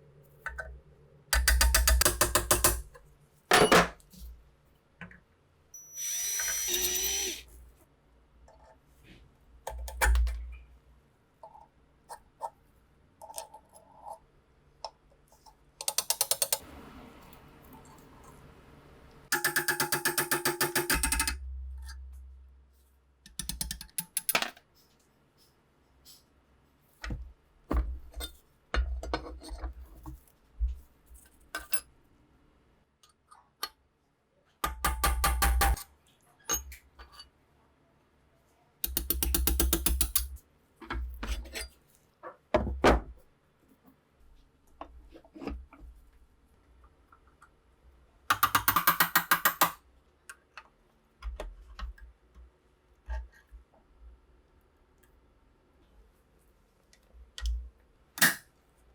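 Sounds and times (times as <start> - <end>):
metal parts clicking and ratcheting: 19.3 - 22.0, 38.8 - 40.4.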